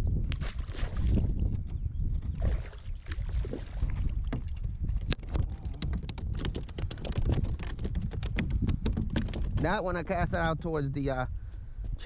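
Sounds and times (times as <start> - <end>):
wind rumble on microphone: 0.0 - 12.0
small sharp clicks and knocks: 5.1 - 9.7.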